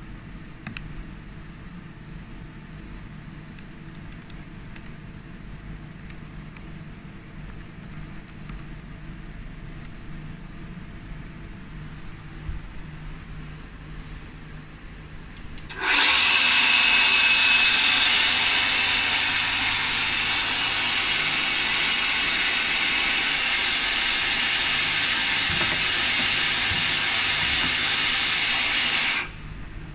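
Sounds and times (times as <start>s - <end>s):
lathe machine hiss with whine: 15.7s - 29.6s.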